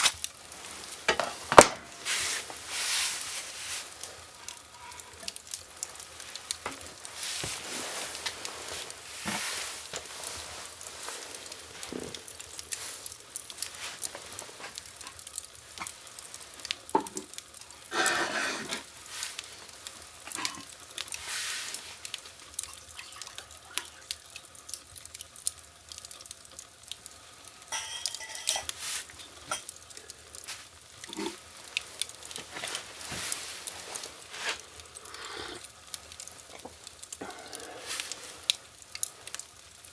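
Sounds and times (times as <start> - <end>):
fire crackling in a fireplace: 0.0 - 39.9.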